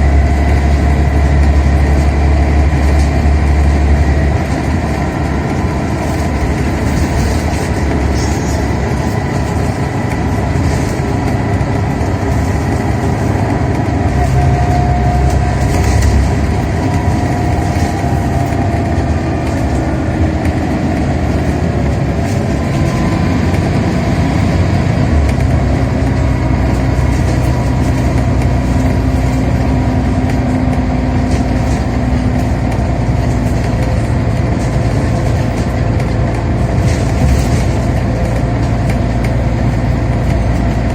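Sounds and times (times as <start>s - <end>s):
gearbox whine: 0.0s - 30.2s
bus engine under way: 0.0s - 40.9s.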